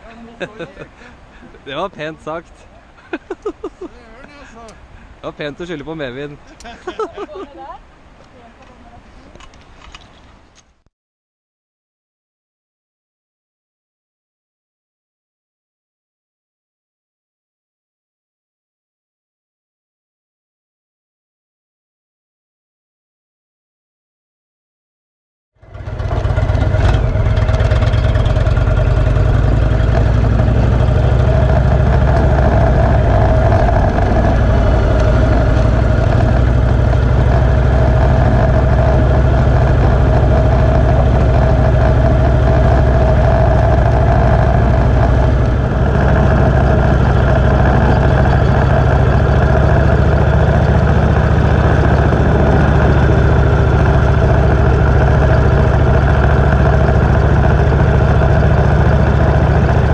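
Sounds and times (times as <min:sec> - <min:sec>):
motorcycle engine rumbling: 0:25.6 - 0:59.9.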